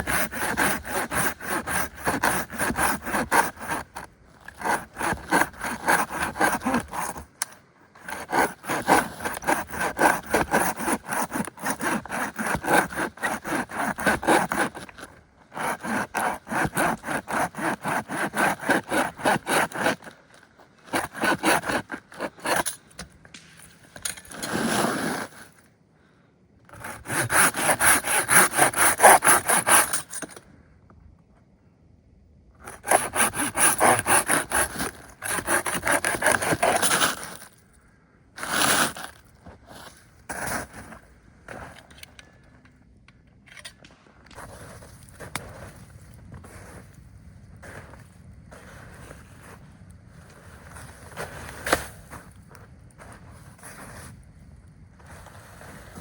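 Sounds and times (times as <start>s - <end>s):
hand saw cutting wood: 0.0s - 20.2s, 20.8s - 22.9s, 24.0s - 25.5s, 26.7s - 30.4s, 32.7s - 37.5s, 38.4s - 39.2s.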